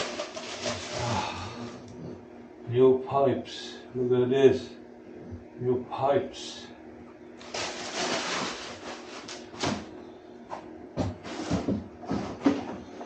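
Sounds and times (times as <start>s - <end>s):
packaging rustling: 0.0s - 1.2s, 7.4s - 9.7s.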